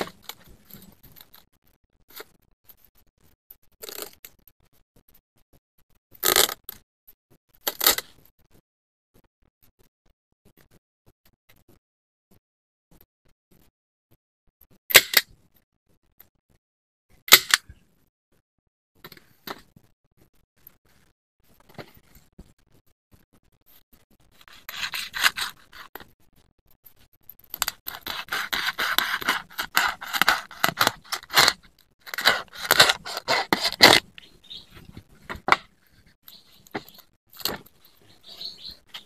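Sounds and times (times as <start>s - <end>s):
scraping and rubbing: 23.6s - 26.1s, 26.9s - 39.0s.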